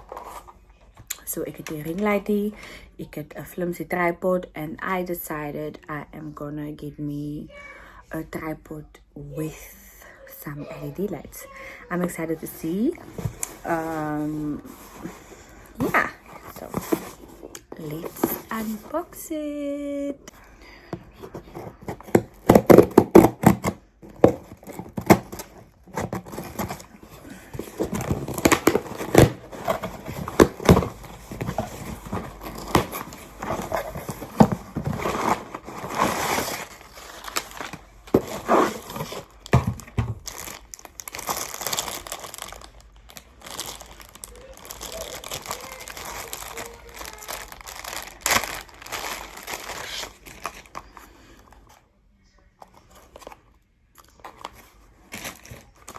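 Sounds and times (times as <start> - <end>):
plastic wrapping crinkling and tearing: 21.3 - 51.0, 53.0 - 55.9
rustles and scrapes: 24.3 - 39.4.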